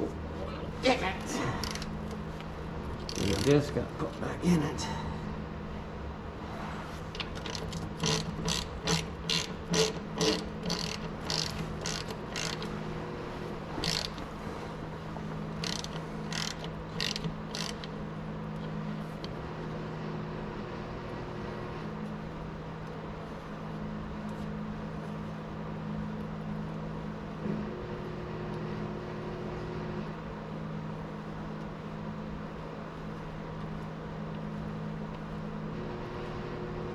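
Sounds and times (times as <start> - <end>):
steady low hum: 0.0 - 36.9
ratchet wrench clicking: 1.6 - 1.9, 3.0 - 3.6, 7.2 - 12.7, 13.8 - 14.2, 15.6 - 17.9.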